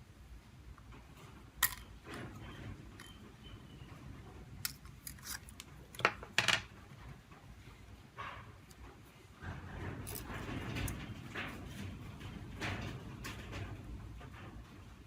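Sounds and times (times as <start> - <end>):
small tools clicking and scraping: 4.6 - 6.7.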